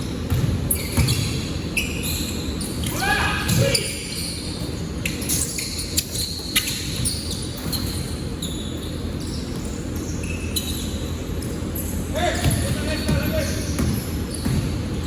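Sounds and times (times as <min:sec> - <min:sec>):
shoe squeaks: 0:00.0 - 0:15.0
basketball bouncing: 0:00.2 - 0:01.4, 0:12.4 - 0:15.0.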